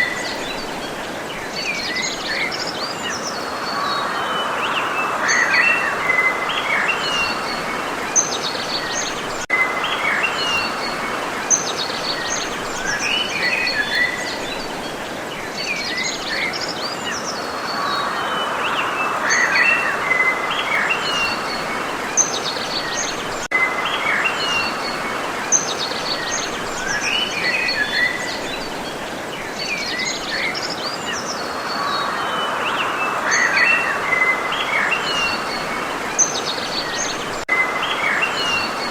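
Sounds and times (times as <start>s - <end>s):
outdoor background hiss: 0.0s - 38.9s.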